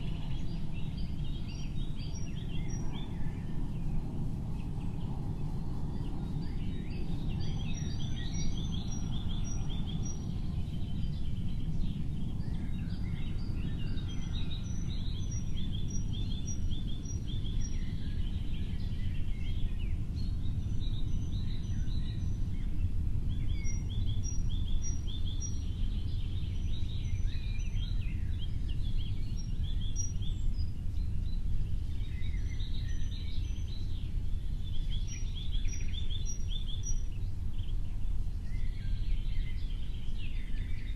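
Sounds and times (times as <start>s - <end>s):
small birds chirping: 0.0s - 40.9s
steady low rumble: 0.0s - 40.9s.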